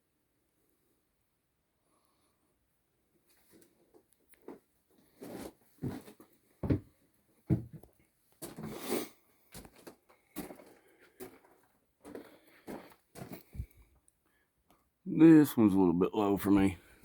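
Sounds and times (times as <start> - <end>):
foot scuffing: 5.2 - 6.9, 7.5 - 7.8, 9.5 - 13.7
footsteps walking: 5.2 - 6.9, 7.5 - 8.8, 9.5 - 13.8.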